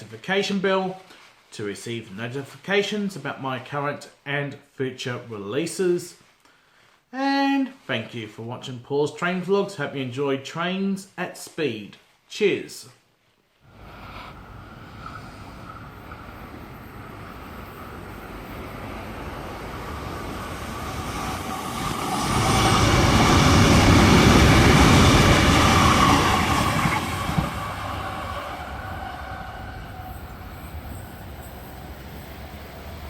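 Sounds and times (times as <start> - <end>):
train passing at high speed: 13.7 - 33.0.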